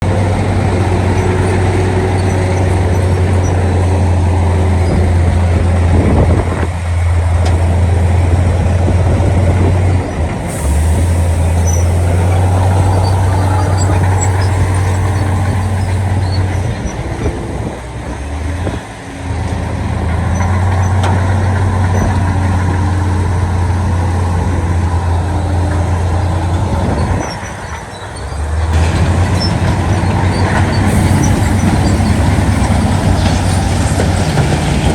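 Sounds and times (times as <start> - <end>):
diesel machinery engine drone: 0.0 - 34.9.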